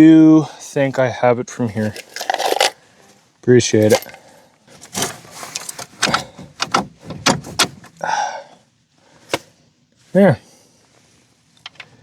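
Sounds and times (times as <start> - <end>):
metallic clanks of hand tools: 3.8 - 4.2.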